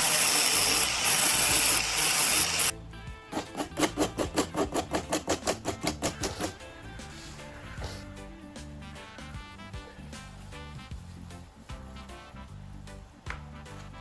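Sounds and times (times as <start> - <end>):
power tool running: 0.0 - 2.7.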